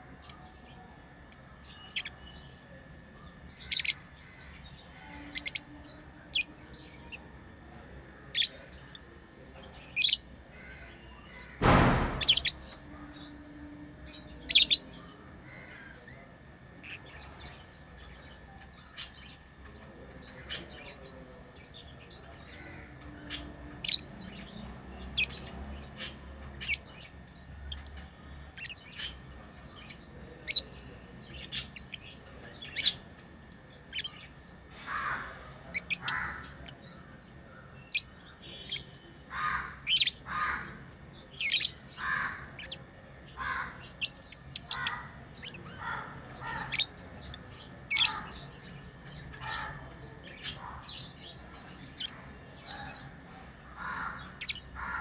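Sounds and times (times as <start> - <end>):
loud rustle or knock: 11.6 - 12.8.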